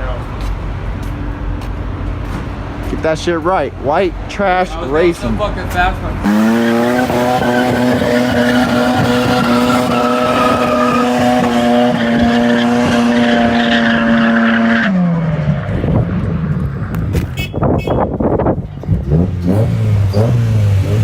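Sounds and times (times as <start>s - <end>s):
car engine at high rpm: 4.9s - 21.0s
tyres squealing: 6.2s - 15.0s.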